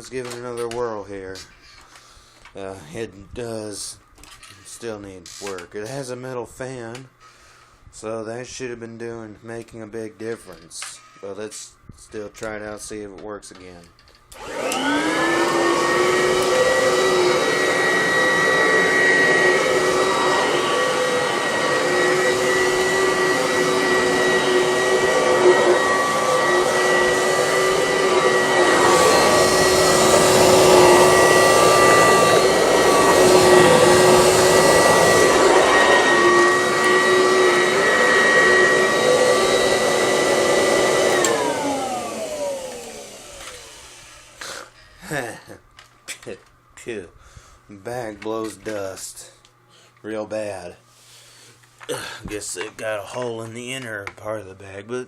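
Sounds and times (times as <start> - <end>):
vacuum cleaner whining: 14.3 - 44.7.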